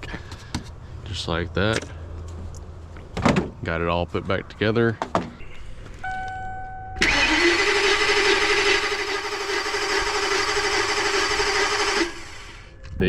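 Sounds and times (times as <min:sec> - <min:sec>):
engine cranking without starting: 0:07.0 - 0:12.7.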